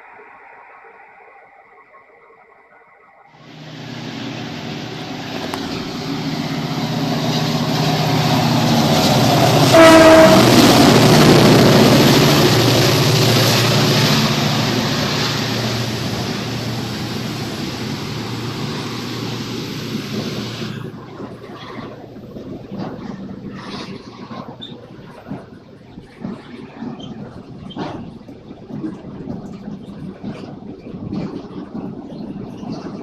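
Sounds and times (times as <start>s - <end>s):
train passing: 3.4s - 33.0s
train horn blast: 4.7s - 14.7s.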